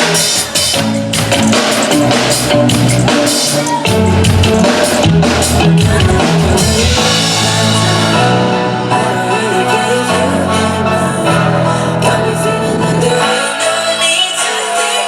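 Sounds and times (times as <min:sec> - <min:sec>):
drum kit: 0:00.0 - 0:09.7
held bass notes: 0:00.8 - 0:13.2.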